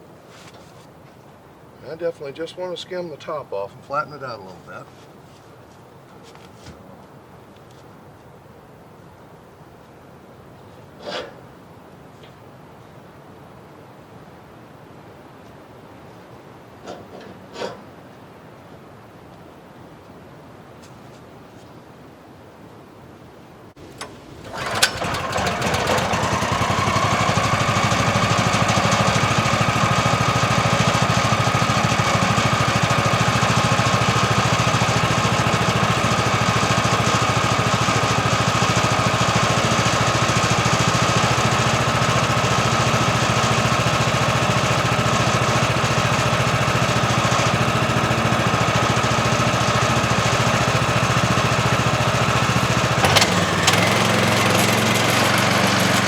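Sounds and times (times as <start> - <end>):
small gasoline engine running: 23.8 - 56.0.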